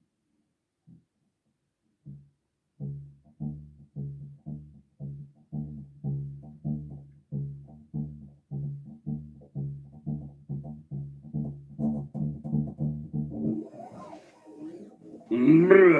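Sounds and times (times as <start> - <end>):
bass guitar riff: 15.2 - 15.9.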